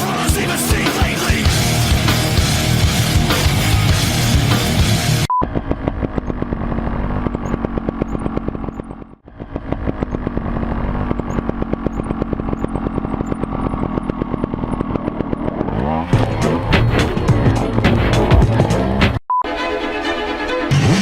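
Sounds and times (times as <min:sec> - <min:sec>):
motorcycle engine running: 0:00.0 - 0:19.2
short beep: 0:05.3 - 0:05.5, 0:19.3 - 0:19.5.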